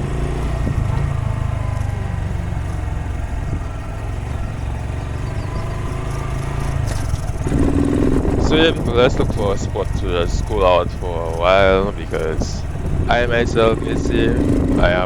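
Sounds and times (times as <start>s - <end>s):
motorbike engine running: 0.0s - 15.0s.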